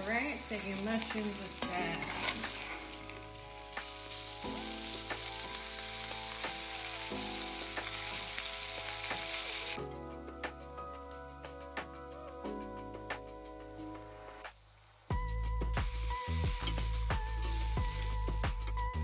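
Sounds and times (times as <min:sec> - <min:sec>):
food sizzling in hot oil: 0:00.0 - 0:19.0
soft background music: 0:00.0 - 0:19.0
spatula stirring in pan: 0:01.4 - 0:03.2.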